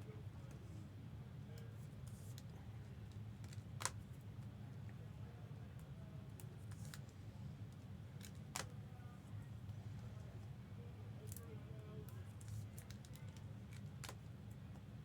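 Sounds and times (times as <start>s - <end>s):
cards clicking into plastic sleeves: 3.1s - 4.0s, 6.4s - 7.1s, 8.2s - 8.7s, 12.4s - 14.2s.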